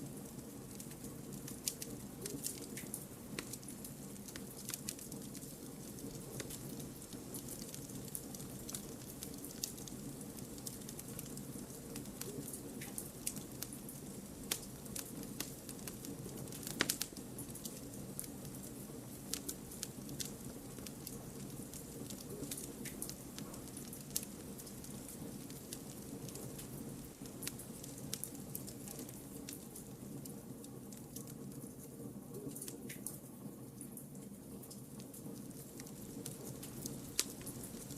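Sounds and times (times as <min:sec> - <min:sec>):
burning logs crackling and popping: 0:00.0 - 0:37.9
low rush of flames: 0:34.6 - 0:37.9.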